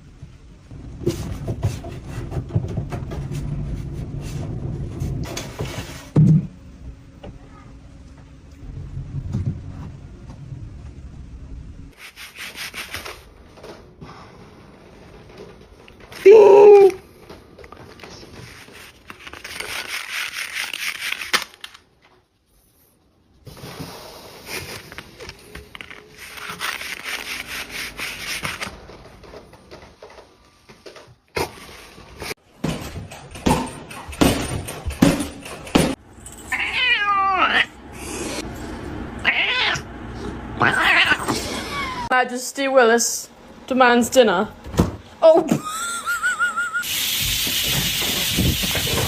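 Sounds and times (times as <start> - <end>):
scratchy noise: 25.8 - 28.7
cats meowing: 36.5 - 37.8, 39.2 - 39.9, 40.6 - 42.1.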